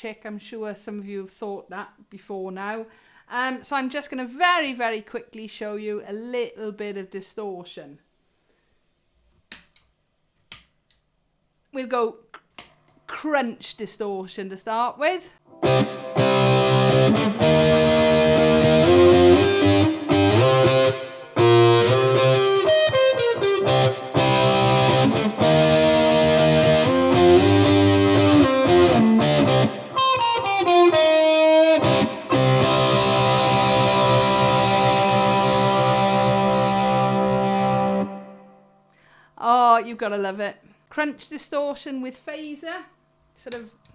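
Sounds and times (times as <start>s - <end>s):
distorted electric ukulele strumming: 15.5s - 38.5s.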